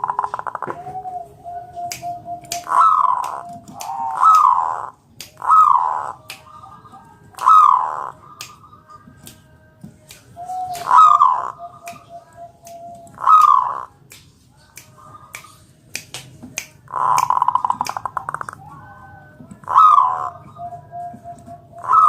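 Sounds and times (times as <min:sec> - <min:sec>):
dove cooing: 0:00.0 - 0:08.4, 0:10.4 - 0:13.9, 0:16.9 - 0:22.0.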